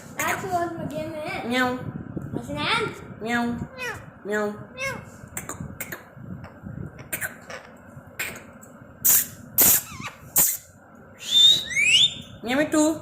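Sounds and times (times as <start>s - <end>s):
parrot hissing: 9.0s - 12.1s.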